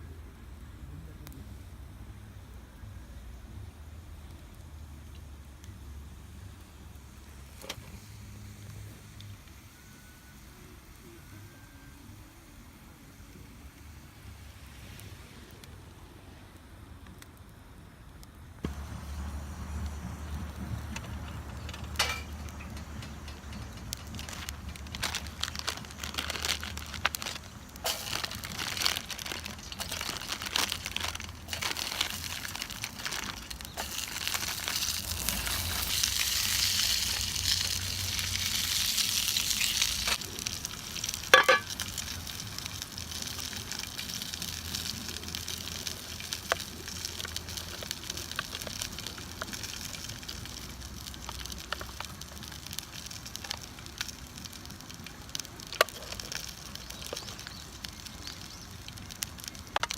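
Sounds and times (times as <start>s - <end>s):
small crackles and clicks: 4.2s - 5.8s, 16.5s - 59.9s
food sizzling in a frying pan: 18.7s - 59.9s.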